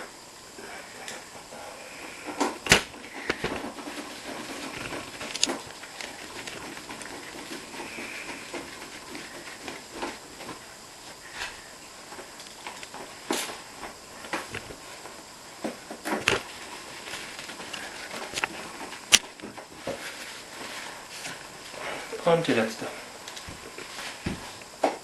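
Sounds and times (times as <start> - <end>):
screwdriver clicking and scraping: 4.6 - 7.7.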